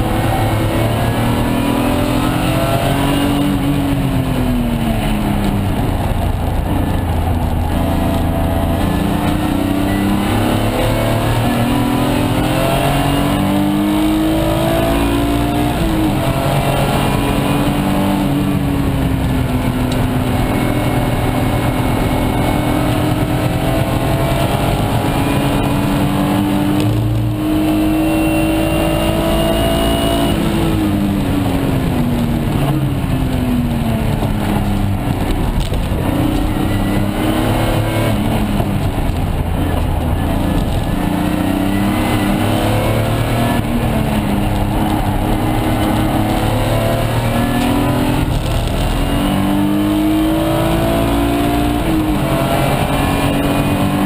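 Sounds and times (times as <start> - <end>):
car engine under hard throttle: 0.0 - 54.0.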